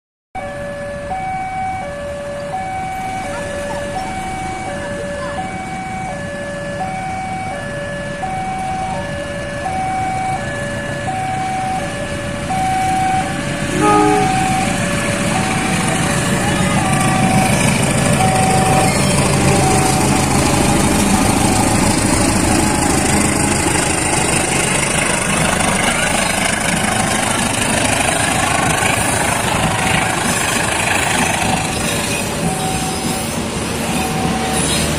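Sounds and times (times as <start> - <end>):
passing train rumble: 2.2 - 34.9
two-tone level crossing signal: 12.5 - 20.0
train horn blast: 13.7 - 14.9.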